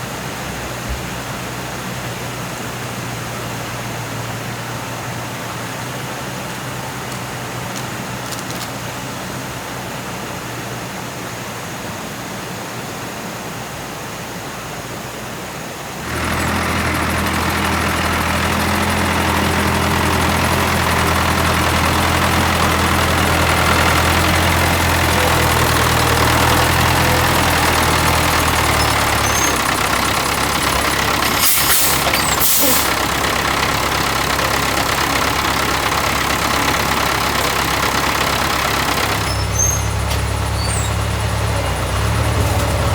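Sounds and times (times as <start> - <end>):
small engine running: 16.0 - 42.9.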